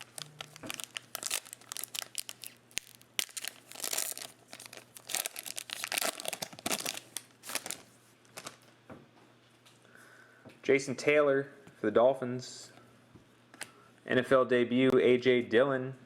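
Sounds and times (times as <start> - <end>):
cards and foil wrapper crinkling: 0.0 - 8.7.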